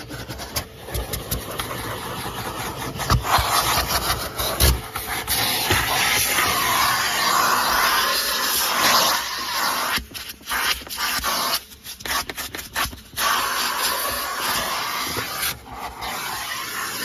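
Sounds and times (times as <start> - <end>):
nozzle scraping car interior: 0.0 - 11.6, 13.2 - 17.0
vacuum cleaner running: 0.7 - 10.0, 13.2 - 17.0.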